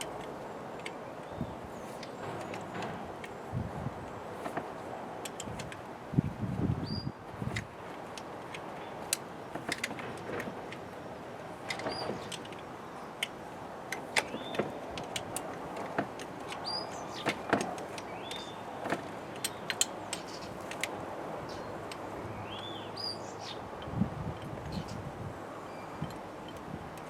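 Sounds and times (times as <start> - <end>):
hand tools clicking and knocking: 0.0 - 5.9, 7.4 - 21.0
bird chirping: 16.5 - 17.4, 18.0 - 20.6, 22.3 - 23.7.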